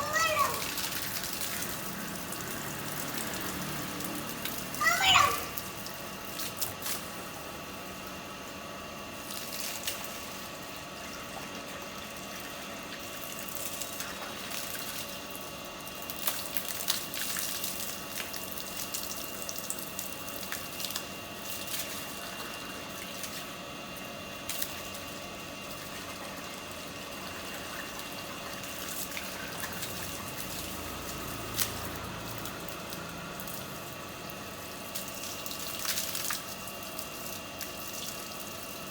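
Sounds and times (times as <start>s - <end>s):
child splashing in water: 0.0s - 7.0s
water running from a tap: 0.0s - 7.4s, 9.2s - 23.6s, 24.4s - 38.9s.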